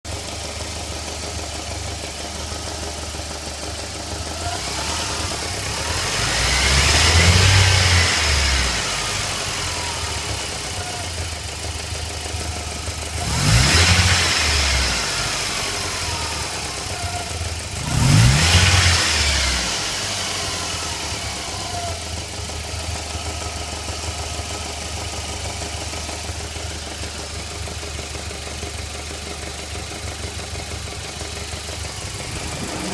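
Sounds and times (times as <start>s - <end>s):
car engine idling and revving: 0.1s - 32.9s.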